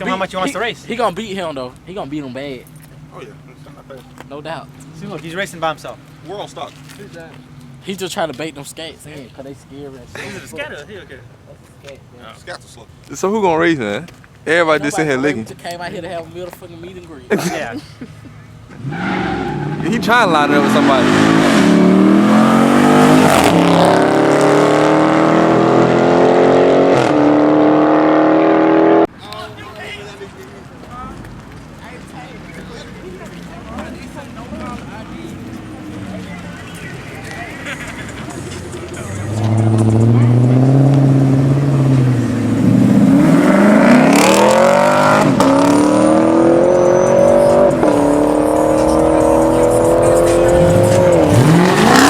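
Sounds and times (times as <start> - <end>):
car engine accelerating hard: 18.7 - 29.1, 37.8 - 52.0.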